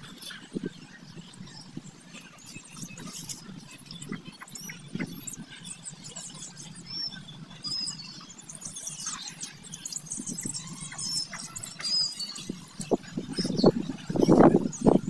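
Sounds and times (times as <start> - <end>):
small birds chirping: 0.0 - 15.0
whistled bird notes: 0.0 - 15.0.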